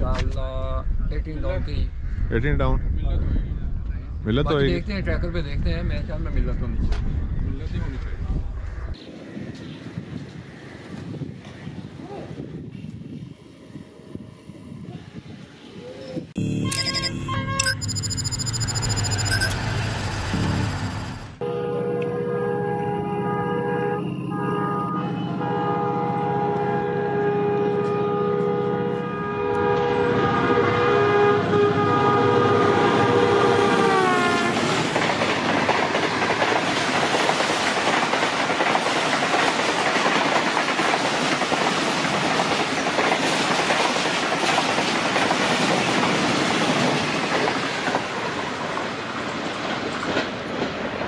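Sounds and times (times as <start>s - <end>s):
train horn blast: 21.4s - 34.7s
train coaches clickety-clack: 33.6s - 51.0s.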